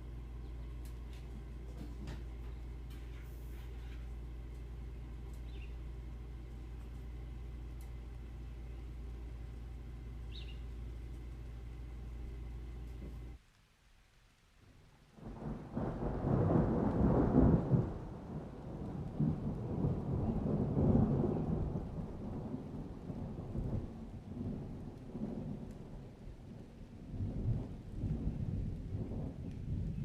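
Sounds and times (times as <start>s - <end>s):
rain: 0.0s - 30.0s
thunder rumbling: 15.1s - 30.0s.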